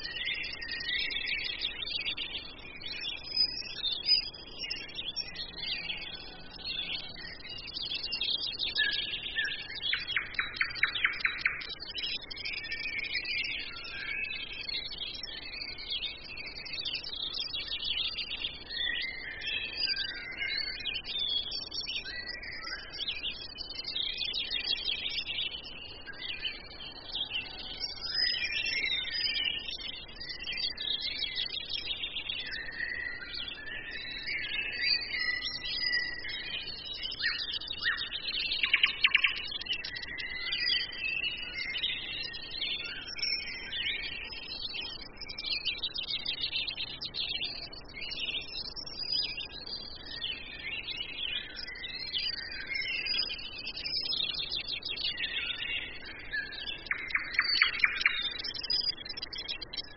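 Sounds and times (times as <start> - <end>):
songbirds chirping and singing: 0.0 - 59.9.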